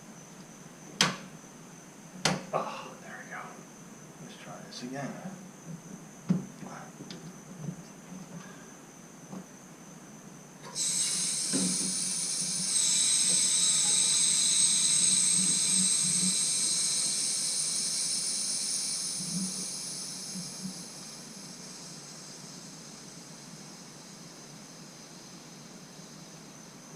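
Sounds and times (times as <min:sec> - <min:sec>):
water hissing through a valve: 0:10.6 - 0:26.9.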